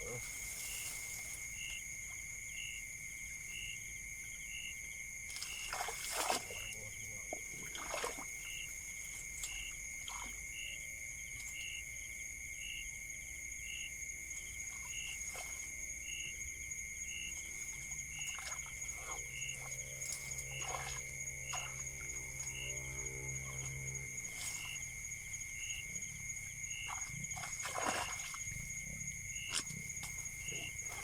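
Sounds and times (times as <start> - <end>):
insects trilling: 0.0 - 31.0
low hum: 17.4 - 27.6.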